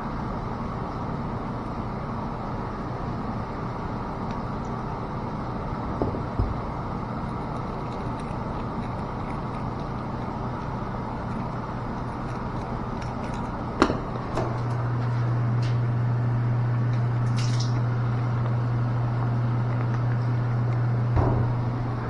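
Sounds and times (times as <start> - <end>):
low machinery hum: 0.0 - 22.0.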